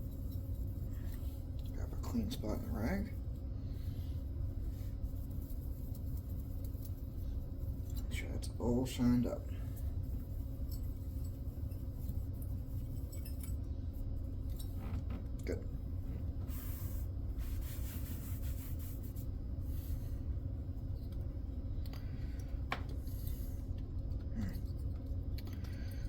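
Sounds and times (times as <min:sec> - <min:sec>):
steady low hum: 0:00.0 - 0:26.0
cloth rag rubbing hard surface: 0:16.4 - 0:20.0.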